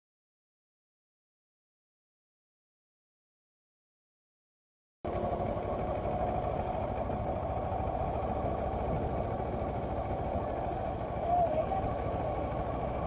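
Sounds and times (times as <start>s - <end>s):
motorcycle engine running: 5.1s - 13.0s
road noise: 5.1s - 13.0s.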